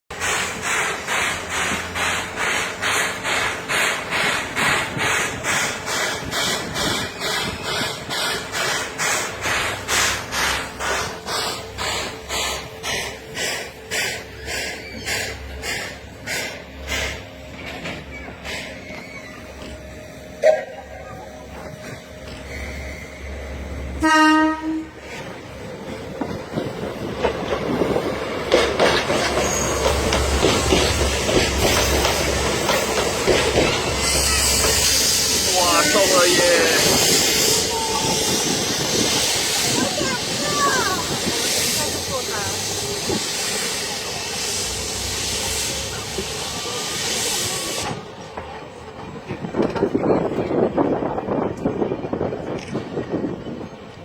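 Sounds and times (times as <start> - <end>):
train wheels clattering over joints: 0.1 - 19.9, 25.0 - 54.0
steam locomotive chuffing: 0.1 - 54.0
steam locomotive whistle: 21.5 - 25.2.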